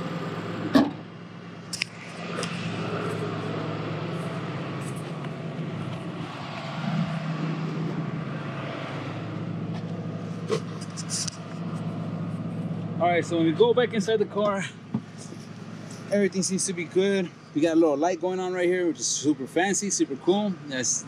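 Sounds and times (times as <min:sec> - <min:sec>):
car engine idling: 0:00.0 - 0:21.0
car hood slamming shut: 0:00.7 - 0:01.0.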